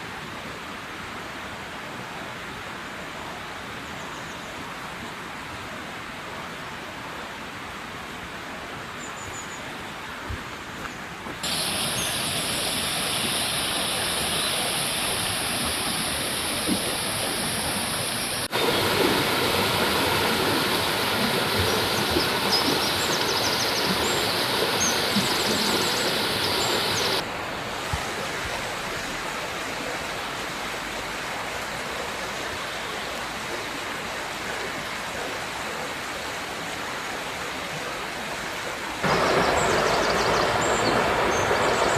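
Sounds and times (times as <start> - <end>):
river water rushing: 9.8 - 41.9.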